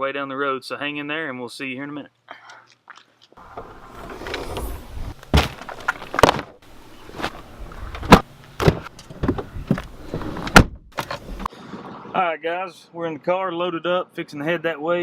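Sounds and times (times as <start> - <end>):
car doors shutting: 3.4 - 11.5.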